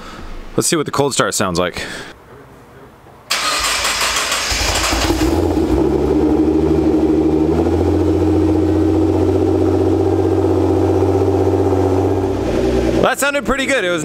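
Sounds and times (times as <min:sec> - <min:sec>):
car engine starting and idling: 0:03.3 - 0:13.2.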